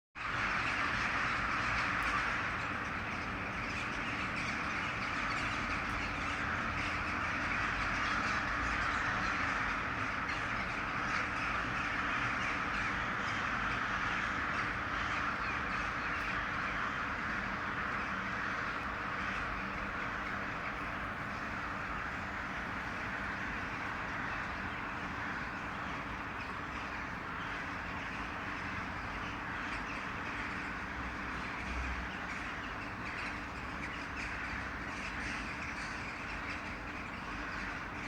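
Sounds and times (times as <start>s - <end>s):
crows cawing: 0.2s - 38.0s.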